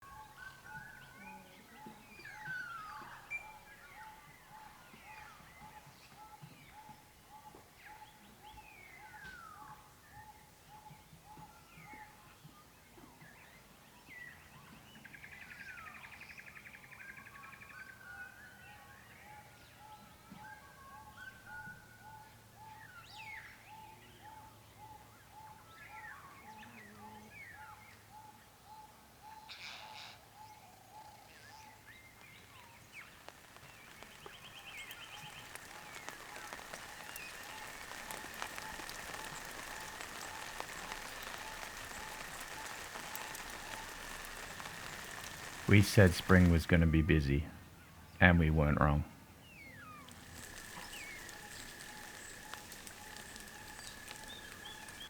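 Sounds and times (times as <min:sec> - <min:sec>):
birds chirping and trilling: 0:32.0 - 0:46.3, 0:48.8 - 0:55.0
rain pattering: 0:32.1 - 0:49.1, 0:50.0 - 0:55.0.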